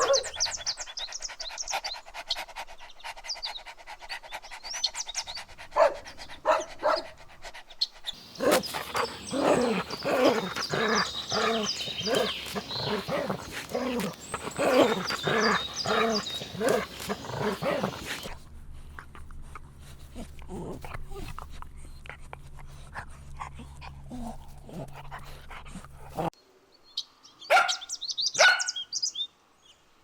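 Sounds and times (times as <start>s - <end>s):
dogs barking: 0.0s - 0.9s, 5.6s - 7.3s, 8.1s - 18.4s, 27.5s - 28.8s.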